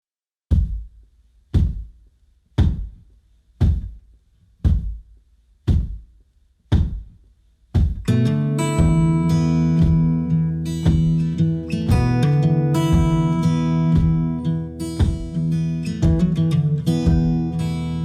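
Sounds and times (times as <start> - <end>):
heavy thumps: 0.5 - 2.0, 2.6 - 4.0, 4.6 - 6.1, 6.7 - 17.8
plucked guitar music: 8.0 - 18.0.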